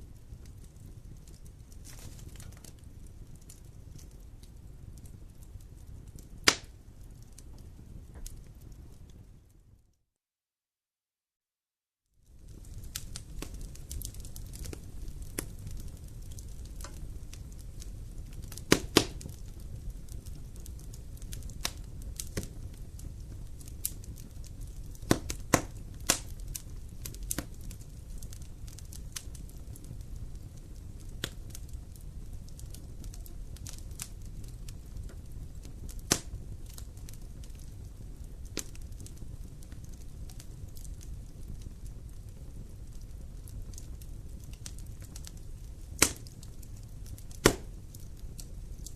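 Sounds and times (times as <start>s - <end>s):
wood crackling and popping: 0.0s - 9.8s, 12.2s - 48.9s
low rumble of flames: 0.0s - 9.9s, 12.2s - 48.9s.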